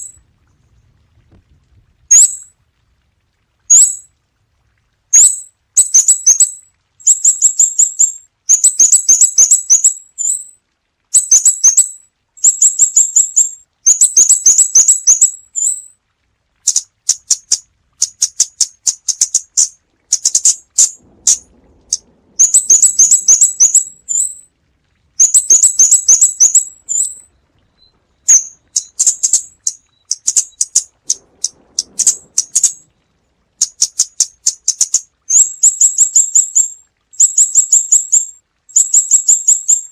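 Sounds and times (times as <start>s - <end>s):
bird calling with sharp ticks: 5.2s - 10.5s, 11.2s - 15.8s, 16.6s - 24.4s, 25.2s - 32.8s, 33.6s - 36.7s.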